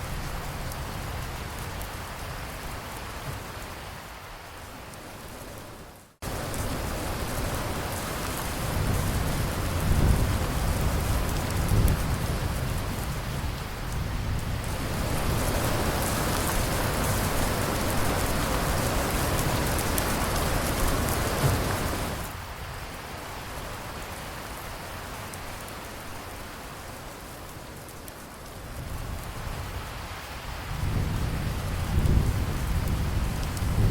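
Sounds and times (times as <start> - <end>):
heavy rain: 0.0 - 33.9
thunder rumbling: 5.1 - 22.4, 30.5 - 33.9.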